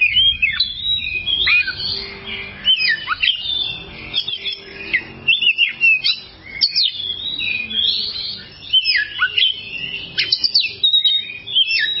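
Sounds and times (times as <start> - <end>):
bird singing whistled notes: 0.0 - 12.0.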